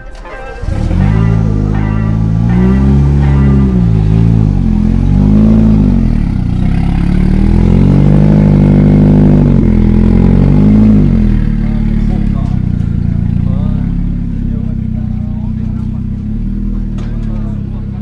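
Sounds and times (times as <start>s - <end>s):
engine revving: 0.5s - 18.0s.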